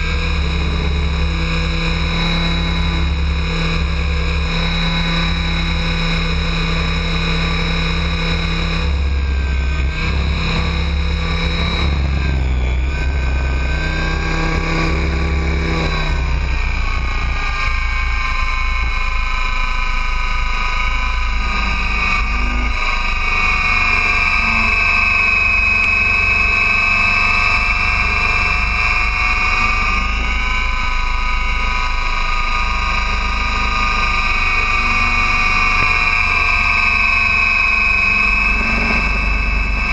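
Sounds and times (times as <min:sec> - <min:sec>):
model helicopter rotor whine: 0:00.0 - 0:39.9
wind rumbling on microphone: 0:00.0 - 0:39.9.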